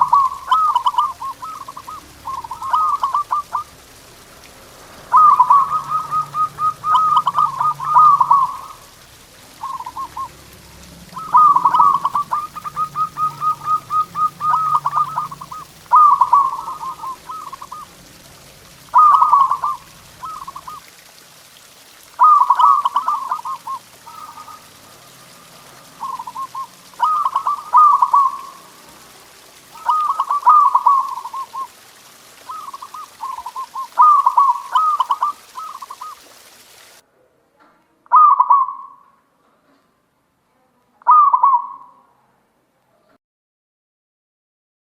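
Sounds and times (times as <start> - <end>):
dove cooing: 0.0 - 4.2, 5.1 - 21.0, 22.2 - 28.7, 29.8 - 36.2, 38.1 - 38.9, 41.1 - 41.9.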